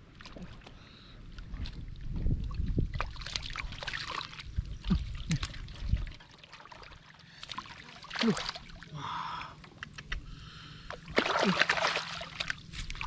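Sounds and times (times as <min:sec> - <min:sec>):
muddy water splashing: 0:00.0 - 0:13.0
sharp plops in water: 0:11.1 - 0:13.0.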